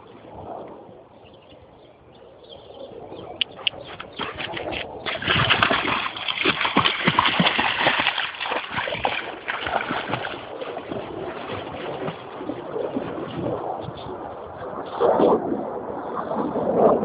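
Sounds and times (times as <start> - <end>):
dog splashing through water: 3.5 - 15.0.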